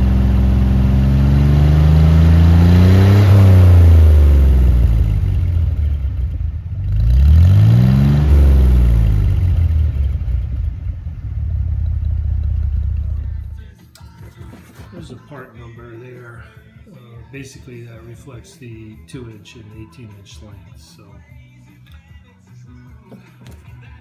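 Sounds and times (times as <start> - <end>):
car engine revving: 0.0 - 13.7.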